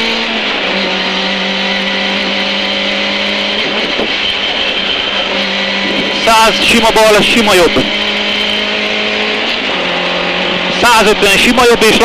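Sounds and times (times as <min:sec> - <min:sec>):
rally car engine at high revs: 0:00.0 - 0:12.0.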